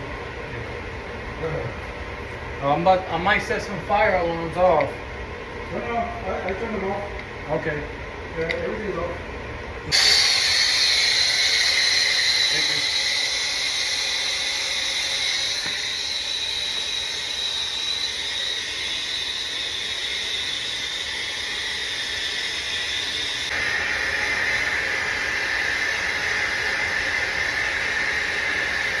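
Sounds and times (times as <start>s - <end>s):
whistling tone: 9.9s - 23.6s
brazing torch hissing: 9.9s - 29.0s.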